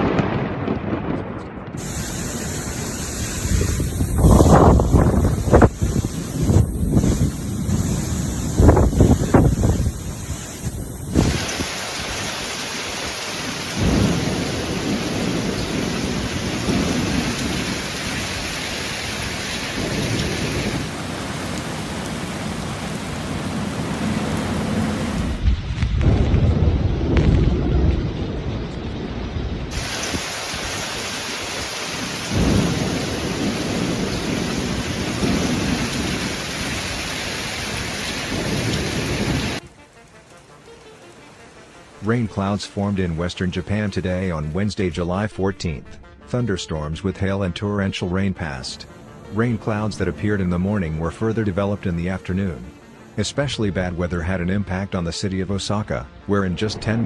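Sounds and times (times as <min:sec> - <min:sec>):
thunder rumbling: 0:00.0 - 0:40.6, 0:48.4 - 0:52.2
heavy rain pouring: 0:00.0 - 0:45.2, 0:47.9 - 0:57.0.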